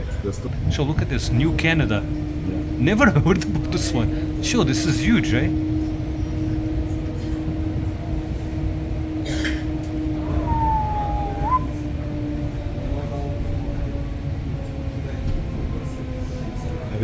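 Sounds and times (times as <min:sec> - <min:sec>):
train rumble and hum: 0:00.0 - 0:17.0
train squeal: 0:10.4 - 0:11.7.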